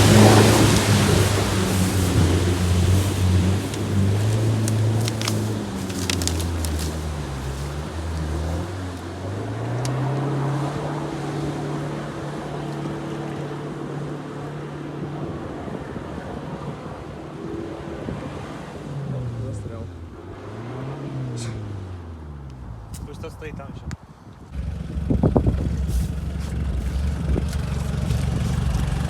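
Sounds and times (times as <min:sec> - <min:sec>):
rushing hiss: 0:00.0 - 0:08.8
off-road vehicle engine: 0:00.0 - 0:23.7, 0:24.5 - 0:29.0.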